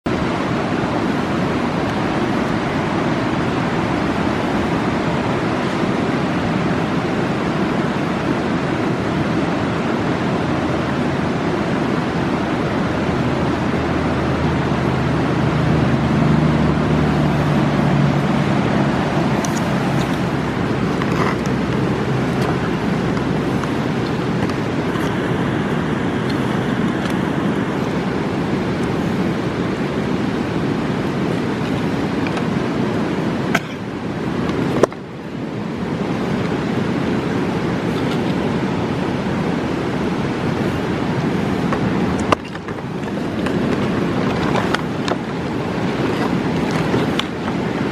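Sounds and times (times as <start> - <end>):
fast mountain river roaring: 0.1 - 47.9
campfire crackling: 17.3 - 47.9.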